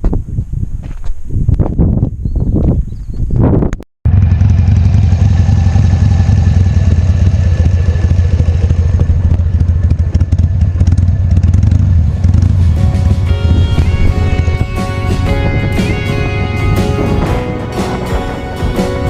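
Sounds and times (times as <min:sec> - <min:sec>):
motorcycle engine rumbling: 0:04.1 - 0:19.0.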